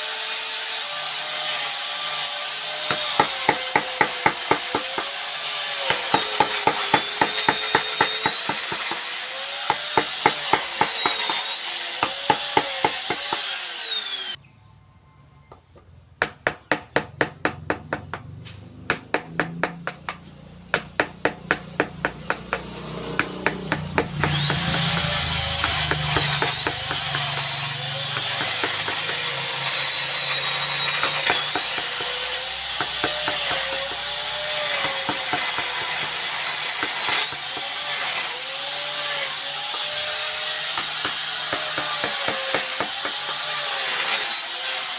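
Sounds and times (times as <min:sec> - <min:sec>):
power tool whine: 0:00.0 - 0:14.4, 0:16.7 - 0:44.9
carving tool tapping on wood: 0:15.5 - 0:18.3, 0:18.9 - 0:27.4, 0:40.6 - 0:43.3.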